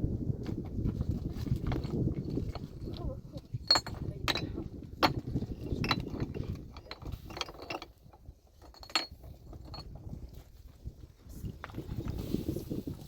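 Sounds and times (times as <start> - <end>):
tools striking rock: 3.7 - 7.9.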